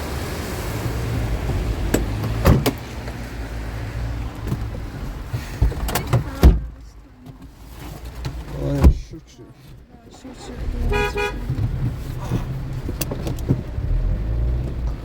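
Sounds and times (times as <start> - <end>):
vehicle engine rumble: 0.0 - 15.0
sharp knocks and clunks: 1.4 - 3.2, 4.4 - 9.8, 11.4 - 13.8
heavy thump: 4.4 - 6.8.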